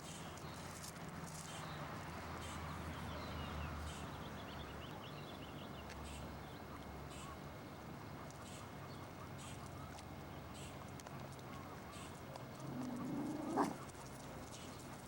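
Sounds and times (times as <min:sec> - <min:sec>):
small birds chirping: 0:00.0 - 0:07.4, 0:08.2 - 0:15.0.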